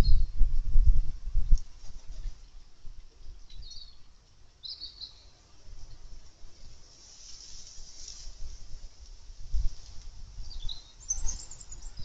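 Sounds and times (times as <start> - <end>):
wind rumble on microphone: 0.0 - 4.2, 5.6 - 12.0
garden bird chirps: 3.5 - 6.7, 10.4 - 12.0.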